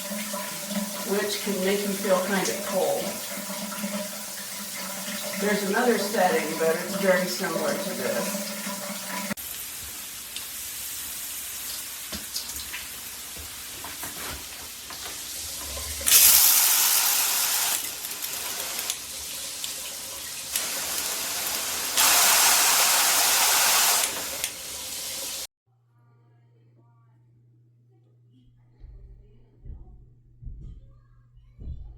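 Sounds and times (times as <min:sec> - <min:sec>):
shower head spraying water: 0:00.0 - 0:25.5.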